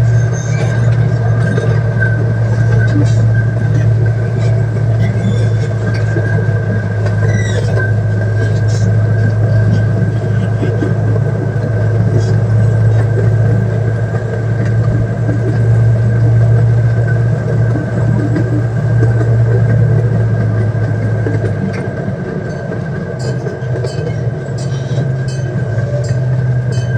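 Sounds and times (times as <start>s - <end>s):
thin steady whine: 0.0s - 26.9s
train engine humming: 0.0s - 26.9s.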